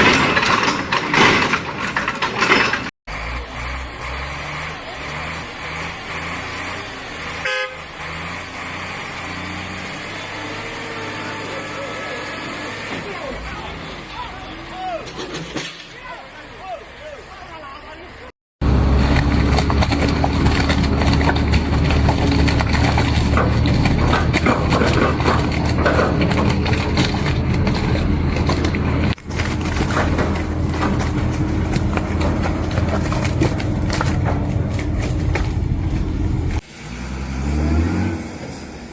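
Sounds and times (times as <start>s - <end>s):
truck engine running: 0.0s - 37.2s
truck horn toot: 7.2s - 8.3s, 10.6s - 14.6s.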